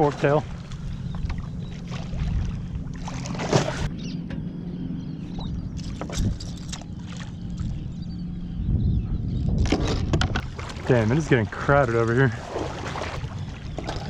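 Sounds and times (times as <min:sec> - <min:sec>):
water splashing against kayak: 0:00.0 - 0:03.9, 0:09.6 - 0:14.0
steady low hum: 0:00.0 - 0:14.0.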